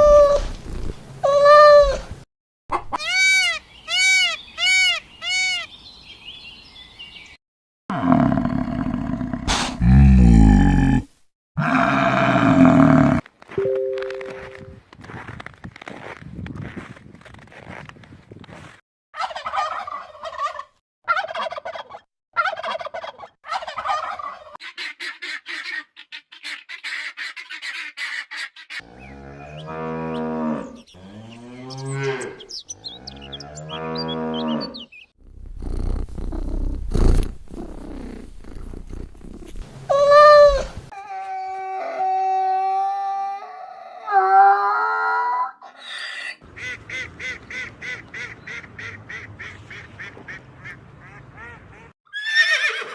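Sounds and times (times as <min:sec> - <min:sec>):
turkey gobbling: 0:19.2 - 0:28.7
cow mooing: 0:28.8 - 0:34.8.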